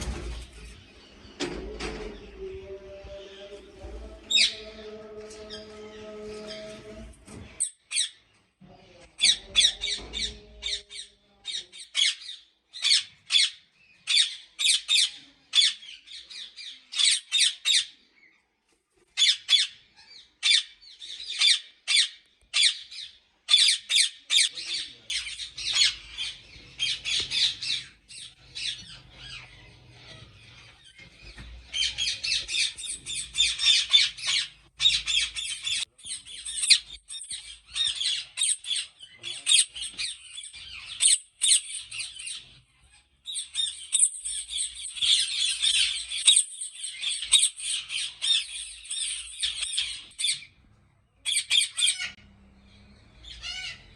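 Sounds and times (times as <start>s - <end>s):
parakeets squawking: 3.2s - 8.2s, 20.4s - 50.6s, 51.3s - 52.2s, 53.2s - 53.9s.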